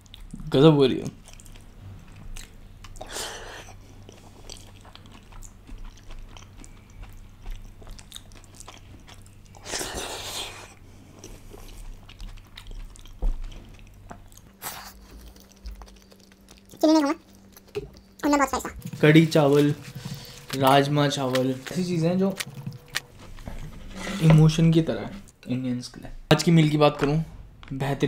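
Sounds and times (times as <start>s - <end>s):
wet chewing and lip-smacking: 0.0s - 0.5s, 1.2s - 23.1s.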